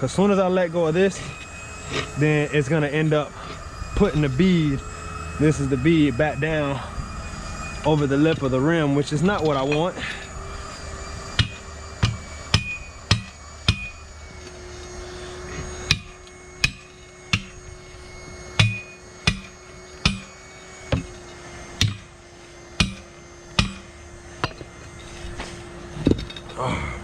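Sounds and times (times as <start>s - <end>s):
hammer blows on metal: 11.4s - 14.0s, 15.5s - 17.6s, 18.5s - 22.1s, 22.8s - 24.7s.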